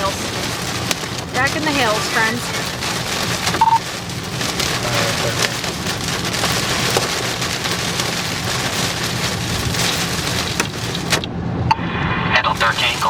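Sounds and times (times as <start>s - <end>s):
heavy rain on vehicle roof: 0.0s - 11.4s, 12.4s - 13.0s
short electronic beep: 3.6s - 3.8s.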